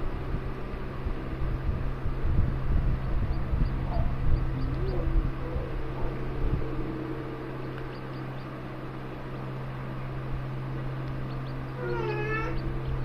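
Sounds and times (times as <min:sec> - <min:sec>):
steady low hum: 0:00.0 - 0:13.0
bird chicks peeping: 0:02.7 - 0:13.0.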